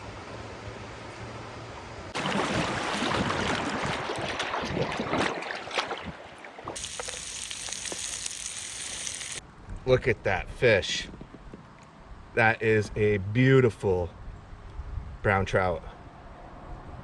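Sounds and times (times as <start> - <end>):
water splashing hard: 2.1 - 9.4.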